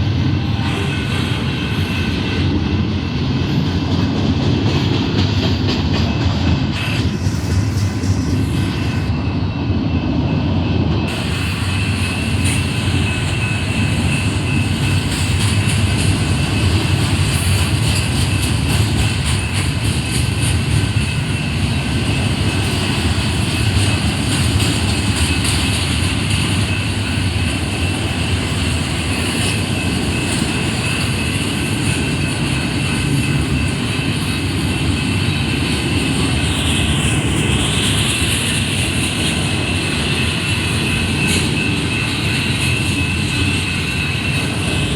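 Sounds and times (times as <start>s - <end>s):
freight train wheels rumbling on rail: 0.0s - 44.9s.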